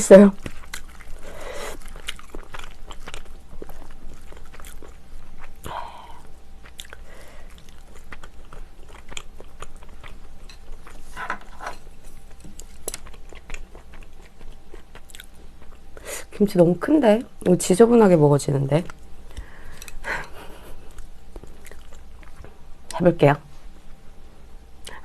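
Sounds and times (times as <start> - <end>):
person chewing: 0.4 - 16.1, 18.9 - 22.6.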